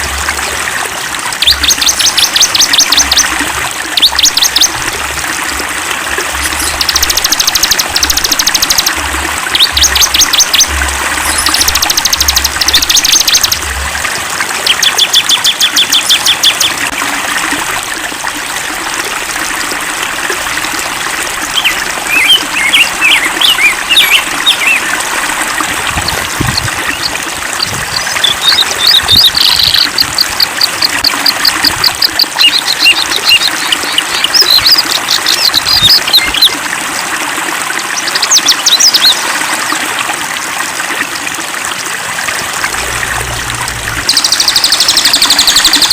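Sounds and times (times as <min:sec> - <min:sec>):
flowing stream: 0:00.0 - 0:45.9
songbirds singing: 0:01.4 - 0:04.8, 0:06.3 - 0:13.8, 0:14.6 - 0:17.0, 0:21.5 - 0:25.0, 0:25.6 - 0:36.6, 0:37.9 - 0:39.2, 0:42.7 - 0:45.9.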